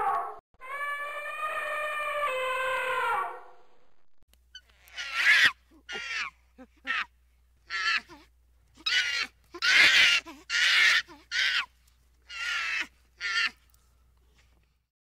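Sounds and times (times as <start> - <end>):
baboons calling: 4.6 - 7.1, 7.7 - 8.2, 8.8 - 11.7, 12.3 - 13.6.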